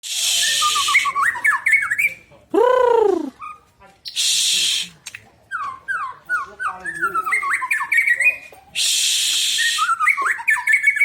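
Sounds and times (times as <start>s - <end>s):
bird rasping hiss: 0.0s - 1.2s, 4.1s - 5.2s, 8.8s - 9.8s
bird whistling song: 0.1s - 2.3s, 3.3s - 11.0s.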